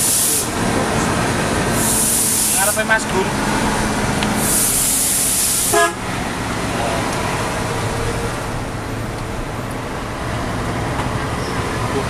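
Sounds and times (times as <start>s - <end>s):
air hiss: 0.0s - 0.6s, 1.7s - 3.0s, 4.3s - 5.9s
truck engine running: 0.0s - 12.0s
truck horn toot: 5.6s - 6.1s.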